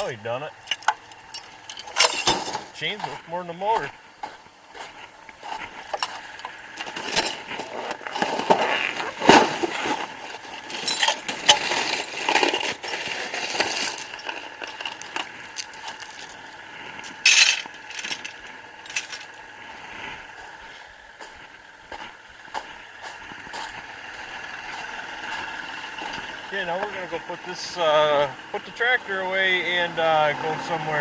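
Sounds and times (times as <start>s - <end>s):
metal chain clinking and rattling: 0.0s - 3.2s, 5.9s - 19.5s.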